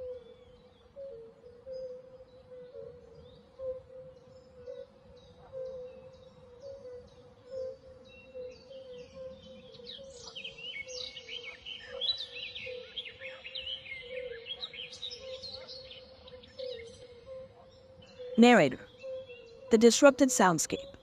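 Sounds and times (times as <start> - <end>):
many birds chirping: 7.1 - 21.0.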